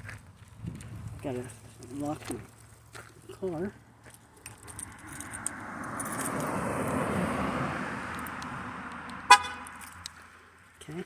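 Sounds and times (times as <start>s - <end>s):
vehicle passing on road: 0.0s - 11.0s
car horn chirp: 9.2s - 9.8s.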